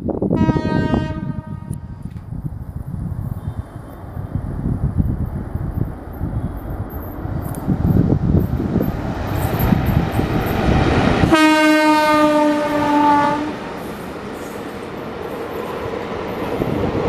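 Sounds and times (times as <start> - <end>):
train track and wheel rumble: 0.0 - 17.0
train horn blast: 0.4 - 2.0, 11.2 - 13.7.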